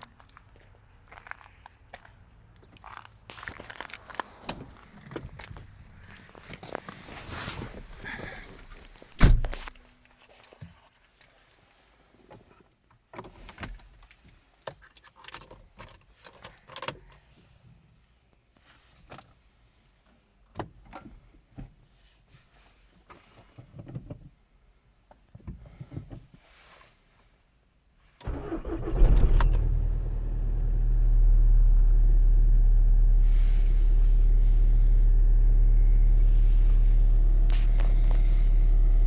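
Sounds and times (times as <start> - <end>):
car door shutting: 9.2 - 9.7
low hum: 29.6 - 39.0.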